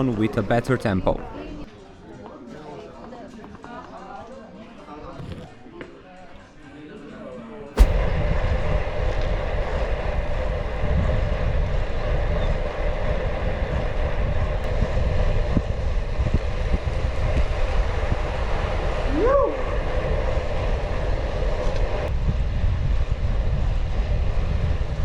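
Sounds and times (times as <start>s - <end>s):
tyre noise on road: 7.8s - 8.2s
wind rushing on microphone: 7.8s - 25.0s.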